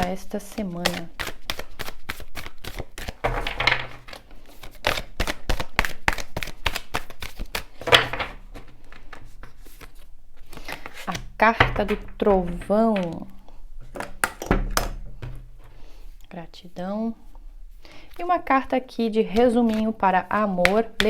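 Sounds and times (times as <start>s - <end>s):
cards being shuffled: 0.0s - 13.3s, 19.3s - 21.0s.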